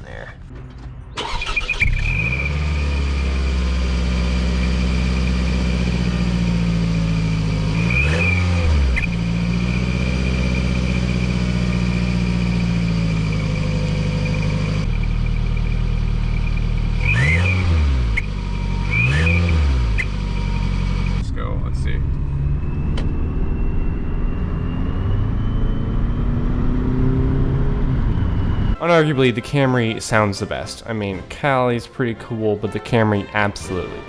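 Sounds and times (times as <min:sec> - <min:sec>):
car engine idling and revving: 0:00.4 - 0:28.8
high exhaust whistle: 0:01.2 - 0:26.8.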